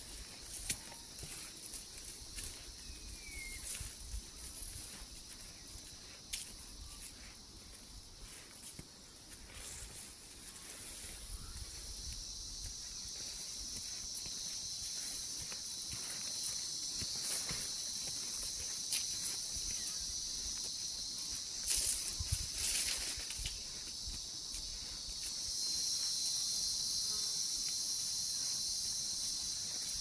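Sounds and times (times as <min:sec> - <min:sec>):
footsteps and rustles: 0:00.0 - 0:30.0
high insect drone: 0:00.0 - 0:30.0
insect chorus: 0:00.0 - 0:30.0
bird chirp: 0:02.8 - 0:03.7.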